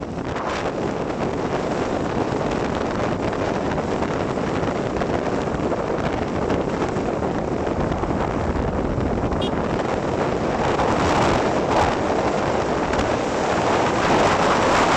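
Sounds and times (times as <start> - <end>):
vehicle road noise: 0.0 - 14.9
wind buffeting microphone: 0.0 - 14.9.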